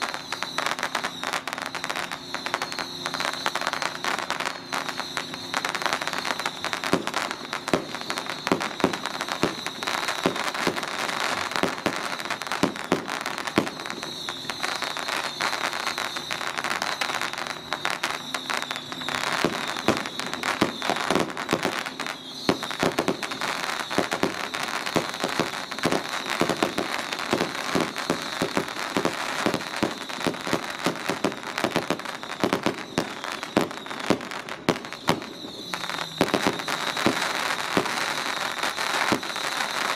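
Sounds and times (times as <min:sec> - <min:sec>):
firecrackers popping: 0:00.0 - 0:39.9.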